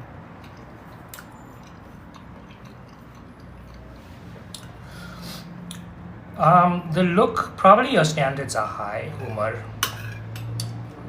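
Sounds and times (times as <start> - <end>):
person chewing food: 0.3 - 4.9.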